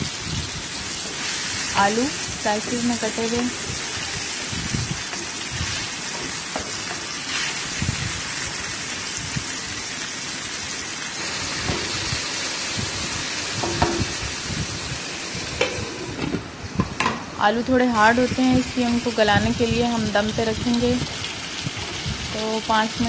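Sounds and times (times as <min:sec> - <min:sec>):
food sizzling in hot oil: 0:00.0 - 0:16.9, 0:17.5 - 0:23.0.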